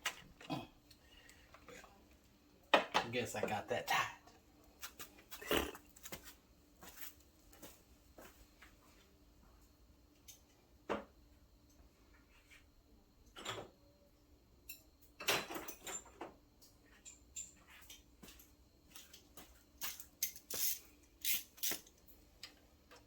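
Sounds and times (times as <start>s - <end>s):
metal tools clinking and knocking: 14.7s - 16.2s, 19.8s - 21.9s.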